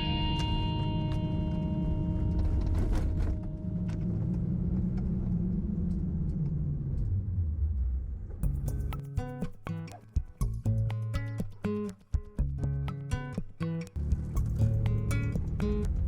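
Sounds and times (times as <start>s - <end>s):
guitar music: 0.0s - 4.9s, 8.4s - 16.0s
car rumbling on the move: 1.6s - 8.6s, 14.0s - 16.0s.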